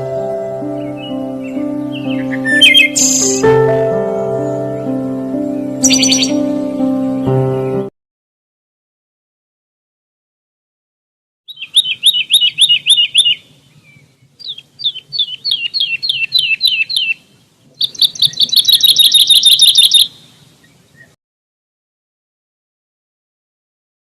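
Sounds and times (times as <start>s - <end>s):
songbird trilling: 0.0s - 3.6s, 4.2s - 7.8s, 11.5s - 21.2s.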